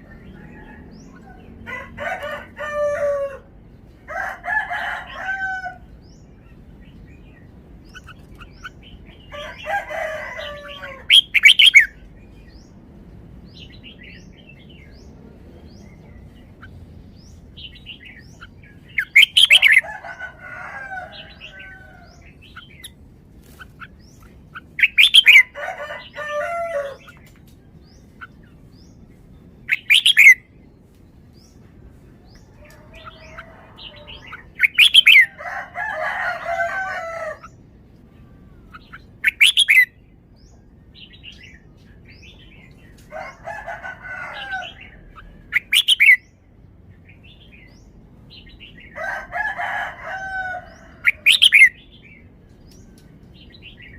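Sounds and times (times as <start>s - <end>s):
bulbul singing: 13.7s - 20.4s, 21.1s - 30.5s, 38.5s - 42.9s, 44.6s - 46.4s.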